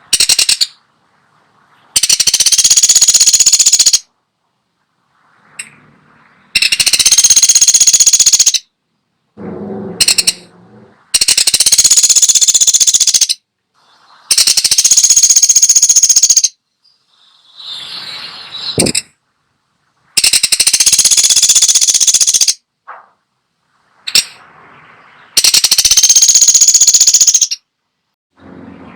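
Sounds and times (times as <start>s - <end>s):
woodpecker rattling calls: 0.0s - 0.8s, 1.9s - 4.1s, 6.6s - 8.7s, 10.0s - 10.5s, 11.1s - 13.4s, 14.3s - 17.7s, 20.2s - 23.0s, 25.0s - 27.7s
softer lower sounds: 8.8s - 11.9s, 22.6s - 25.7s.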